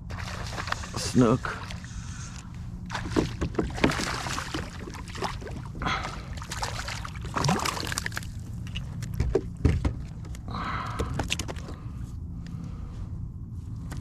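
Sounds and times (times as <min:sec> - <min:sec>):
water splashing against kayak: 0:00.1 - 0:10.2.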